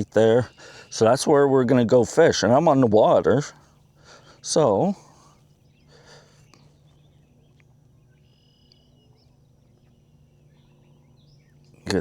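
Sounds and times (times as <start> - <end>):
faint background hum: 0.0 - 12.0
faint high chirps: 5.6 - 12.0.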